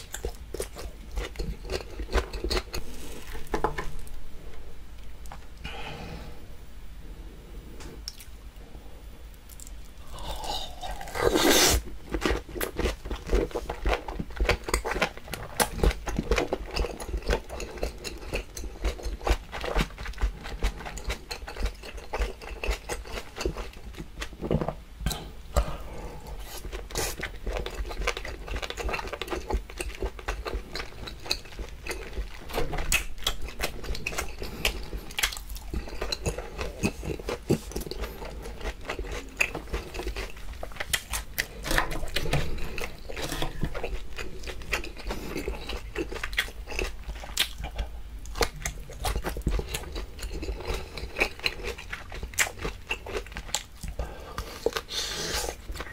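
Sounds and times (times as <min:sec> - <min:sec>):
drawn-in breath sound: 0:54.0 - 0:55.6.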